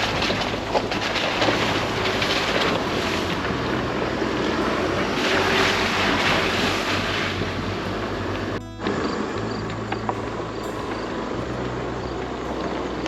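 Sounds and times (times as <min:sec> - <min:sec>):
loud rushing noise: 0:00.0 - 0:08.6
truck engine hum: 0:00.0 - 0:13.0.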